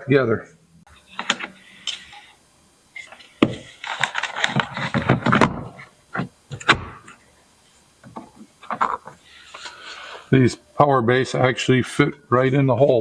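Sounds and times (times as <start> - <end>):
speaker handling clicks and scraping: 0.9 - 2.4, 3.0 - 10.3.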